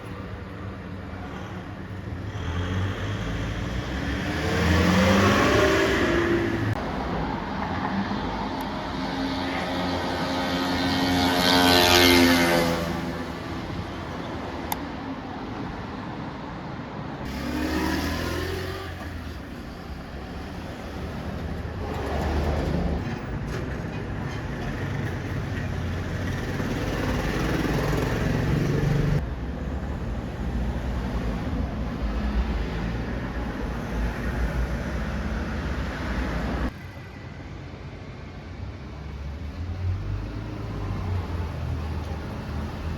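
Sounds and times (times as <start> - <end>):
motorcycle engine revving: 17.3 - 19.3.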